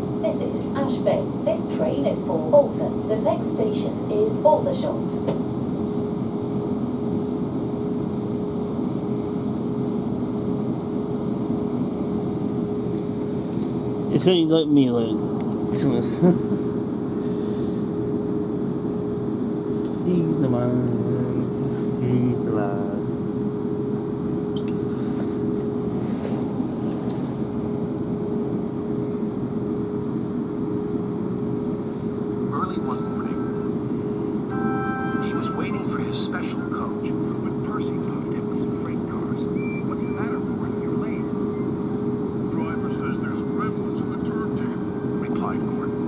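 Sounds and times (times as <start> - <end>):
train rumble from inside carriage: 0.0 - 5.5, 19.8 - 22.9
constant whine: 0.0 - 46.0.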